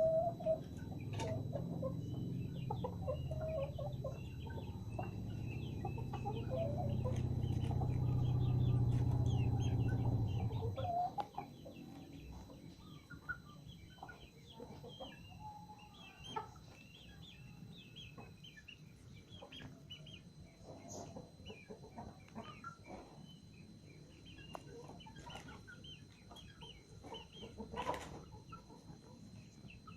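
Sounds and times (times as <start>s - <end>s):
chickens clucking and calling: 0.0s - 29.9s
loud low drone: 4.2s - 10.8s.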